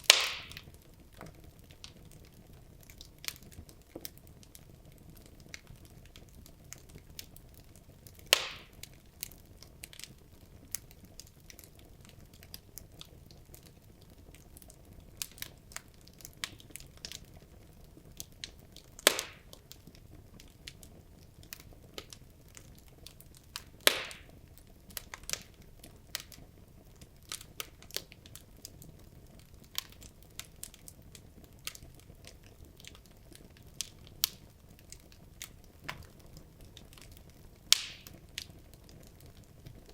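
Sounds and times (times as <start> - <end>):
loud fire pops: 0.0 - 2.2, 8.1 - 11.8, 18.3 - 26.4, 27.0 - 39.9
logs crackling in fireplace: 0.0 - 39.9.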